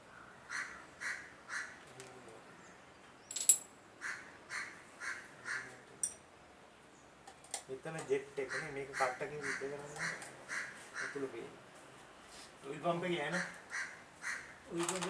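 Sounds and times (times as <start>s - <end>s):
crow cawing: 0.2s - 1.8s, 4.0s - 5.8s, 8.4s - 11.3s, 13.3s - 14.7s
metal part clinking: 3.3s - 3.7s.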